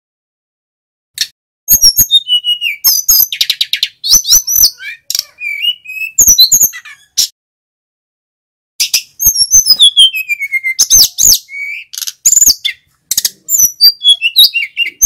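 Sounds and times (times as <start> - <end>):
flycatcher singing: 8.8 - 15.0.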